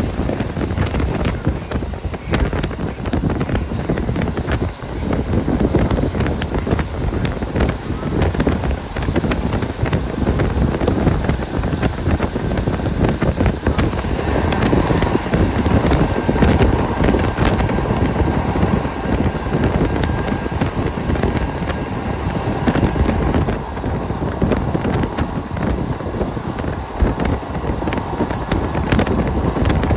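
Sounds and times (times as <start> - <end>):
diesel railcar engine and wheels: 0.0 - 29.9
wind buffeting microphone: 0.0 - 29.9.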